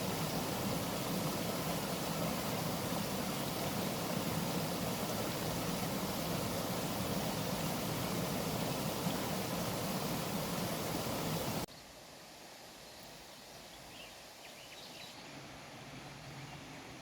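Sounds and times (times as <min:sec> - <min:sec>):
quiet outdoor hiss: 0:00.0 - 0:17.0
faint bird chirps: 0:13.5 - 0:15.4.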